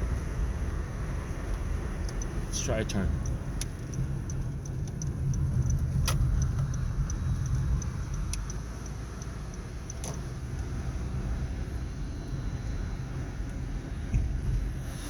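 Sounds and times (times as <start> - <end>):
car road rumble: 0.0 - 15.0
sharp clicks over bumps: 3.2 - 10.7.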